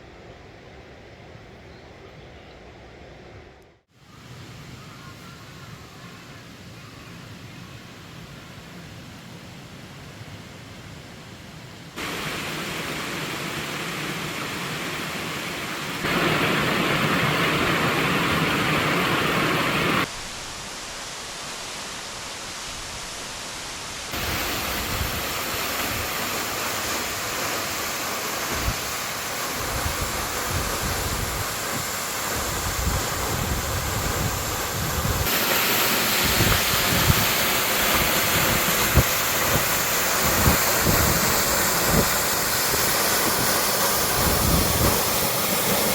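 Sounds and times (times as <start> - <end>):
waterfall roaring: 12.0 - 45.9.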